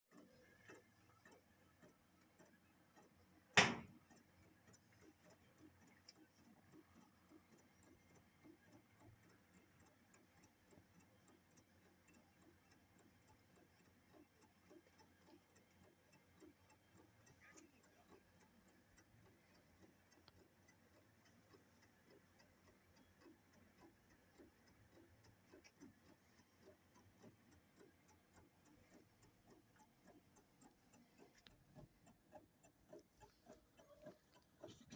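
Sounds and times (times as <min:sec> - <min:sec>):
faint mechanical ticking: 0:00.1 - 0:34.9
sharp loud click: 0:03.6 - 0:04.0.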